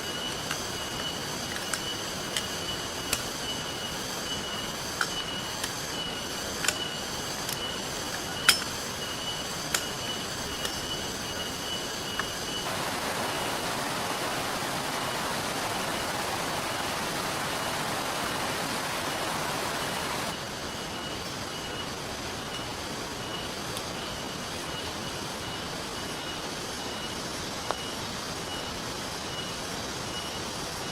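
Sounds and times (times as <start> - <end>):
rain and river rushing: 12.6 - 21.4.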